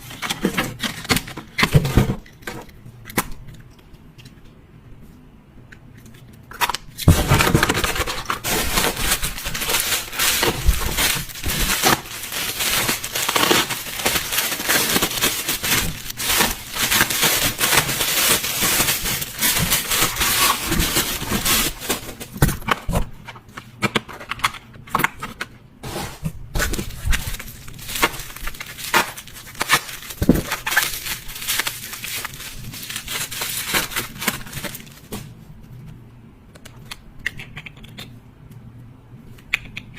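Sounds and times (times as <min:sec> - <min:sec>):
packaging rustling and crackling: 0:00.0 - 0:02.8, 0:06.6 - 0:23.4, 0:24.1 - 0:35.4.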